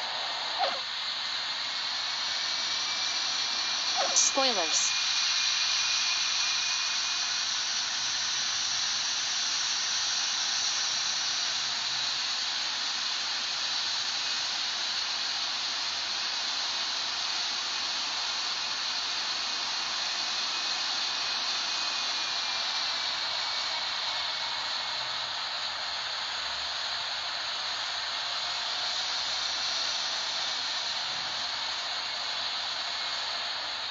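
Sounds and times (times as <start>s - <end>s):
jet engines hissing: 0.0s - 8.1s.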